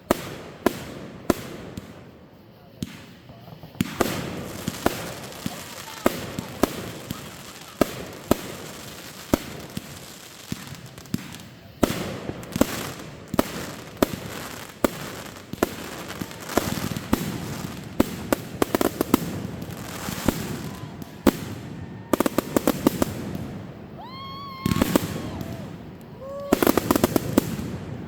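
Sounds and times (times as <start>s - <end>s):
fireworks bangs: 0.0s - 28.0s
fireworks crackling: 0.0s - 28.0s
rushing hiss: 0.0s - 28.0s.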